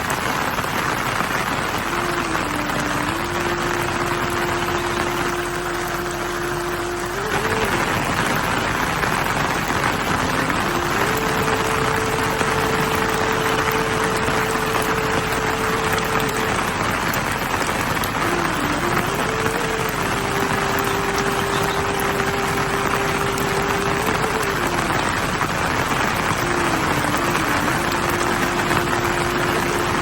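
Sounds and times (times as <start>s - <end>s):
heavy rain falling: 0.0s - 30.0s
steady wavering tone: 1.9s - 25.4s.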